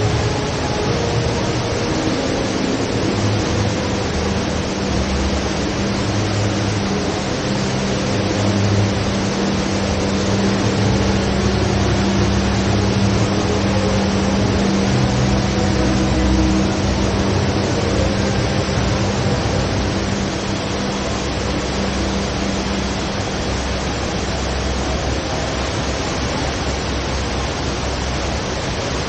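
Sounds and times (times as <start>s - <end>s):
steady hum: 0.0s - 29.0s
waterfall pouring into basin: 0.0s - 29.0s.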